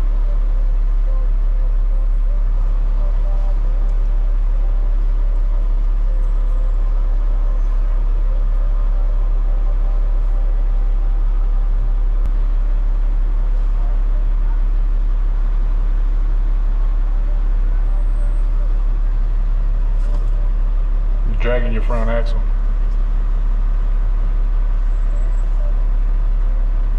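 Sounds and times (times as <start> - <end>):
truck diesel engine drone: 0.0 - 26.9.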